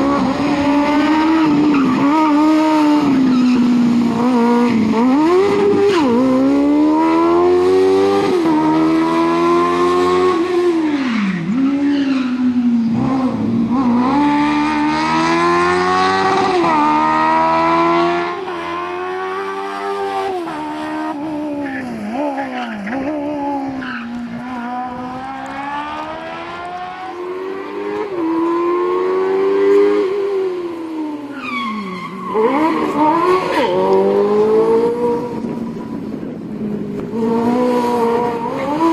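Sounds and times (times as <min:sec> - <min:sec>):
motorcycle engine revving: 0:00.0 - 0:11.8, 0:12.4 - 0:31.3, 0:32.4 - 0:38.9.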